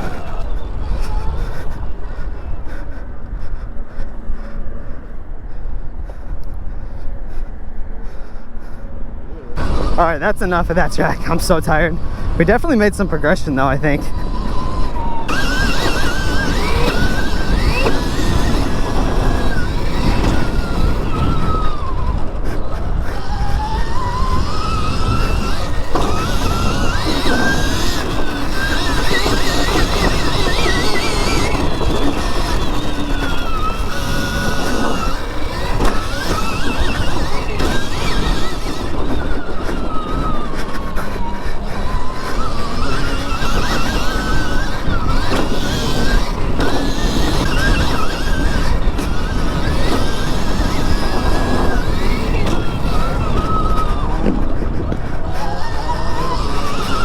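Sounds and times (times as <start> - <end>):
heavy low rumble: 0.0 - 43.1
electric motorbike motor whining: 0.0 - 57.0
wind and ground noise: 0.0 - 57.0.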